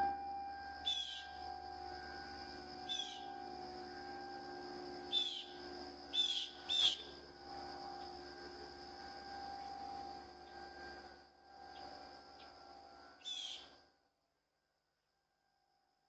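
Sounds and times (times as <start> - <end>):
faint steady hum: 0.0 - 14.0
bird chirping: 0.8 - 1.4, 2.9 - 3.2, 5.1 - 5.6, 6.2 - 7.1, 13.2 - 13.6.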